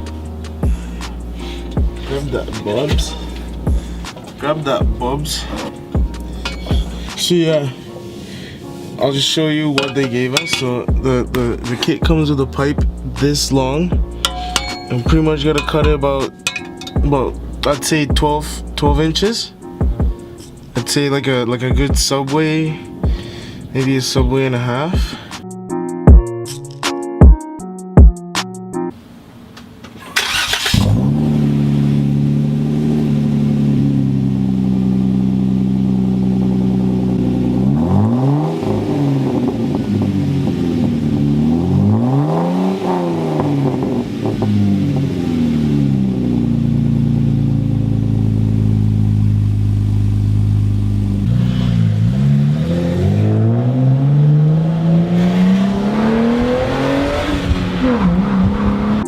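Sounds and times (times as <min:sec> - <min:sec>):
car engine idling and revving: 0:00.0 - 0:07.2, 0:09.8 - 0:20.8, 0:30.2 - 0:59.0.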